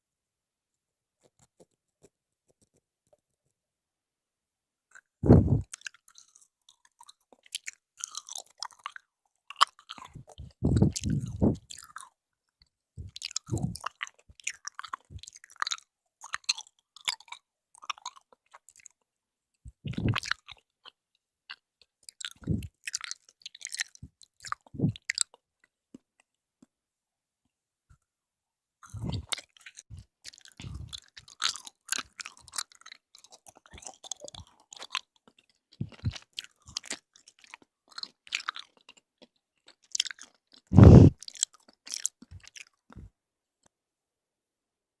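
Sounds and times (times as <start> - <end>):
chewing jelly candy: 4.9 - 26.7, 28.8 - 43.2
low thumps on microphone: 5.2 - 5.6, 10.6 - 11.6, 13.5 - 13.8, 40.8 - 41.1.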